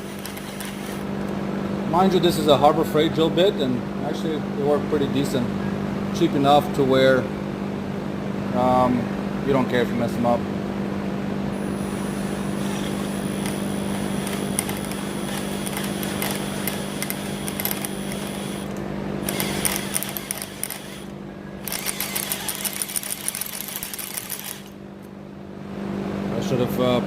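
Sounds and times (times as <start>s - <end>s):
cordless drill drilling into steel: 0.0s - 1.0s, 11.6s - 24.8s
steady low hum: 0.0s - 27.0s.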